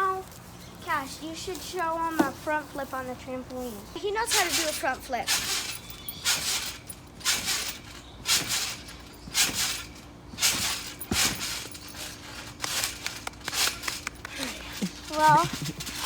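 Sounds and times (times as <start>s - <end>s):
bouncing on a trampoline: 4.0s - 16.0s.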